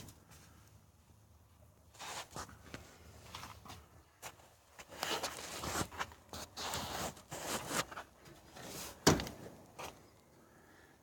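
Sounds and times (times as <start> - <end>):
scuffing and rustling: 1.9 - 9.0.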